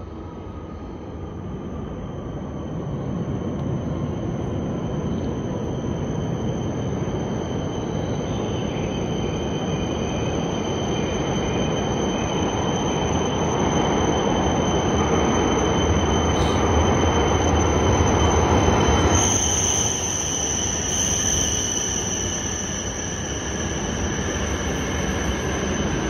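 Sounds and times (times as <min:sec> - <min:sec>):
train rumble: 0:00.0 - 0:26.0
high steady tone: 0:15.9 - 0:26.0
high hiss: 0:16.3 - 0:17.1, 0:18.7 - 0:26.0.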